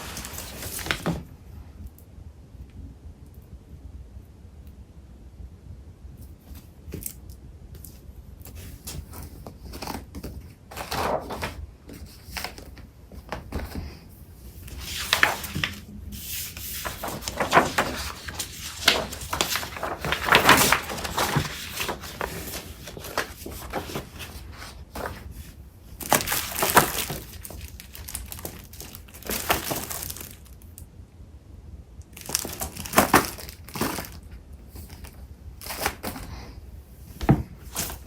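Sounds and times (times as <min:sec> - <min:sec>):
paper rustling and crinkling: 0:00.0 - 0:01.3, 0:07.8 - 0:30.6, 0:32.2 - 0:36.4, 0:37.1 - 0:38.0.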